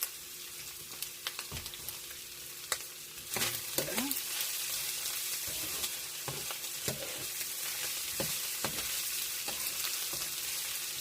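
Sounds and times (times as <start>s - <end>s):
food sizzling in a pan: 0.0s - 11.0s
spatula scraping a pan: 3.3s - 11.0s.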